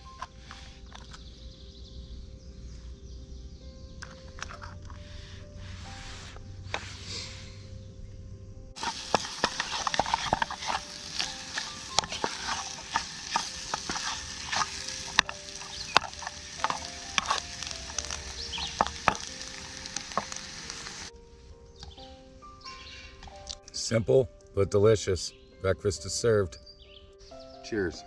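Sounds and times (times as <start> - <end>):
food sizzling in frying pan: 8.8 - 21.1
utensil scraping pan: 8.8 - 21.1.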